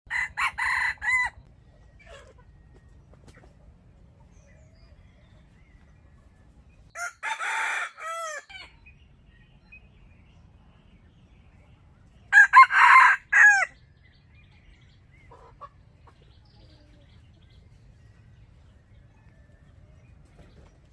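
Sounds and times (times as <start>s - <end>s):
rooster crowing: 0.1s - 1.4s, 7.0s - 8.8s, 12.3s - 13.8s.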